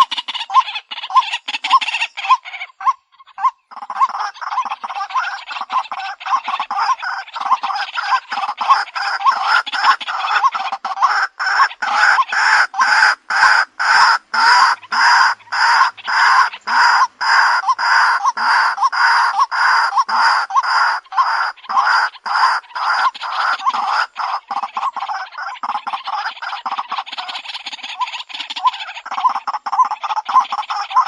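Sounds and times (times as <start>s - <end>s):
bird giving harsh repetitive call: 0.0s - 31.0s.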